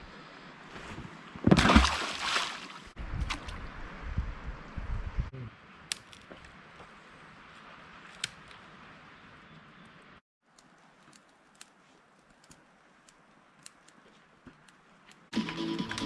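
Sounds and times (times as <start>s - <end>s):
light clicks and ticks: 10.5s - 15.3s.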